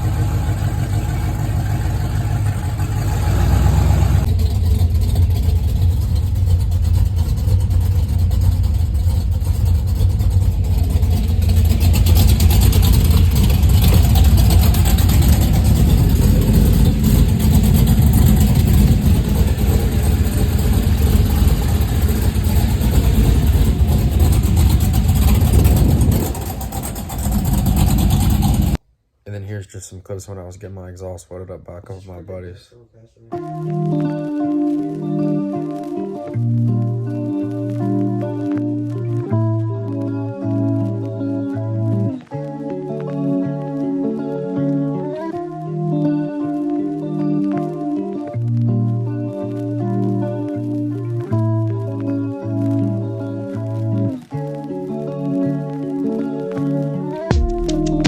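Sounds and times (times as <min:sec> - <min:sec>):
engine exhaust rumble: 0:00.0 - 0:28.8, 0:33.9 - 0:42.2, 0:47.8 - 0:54.6.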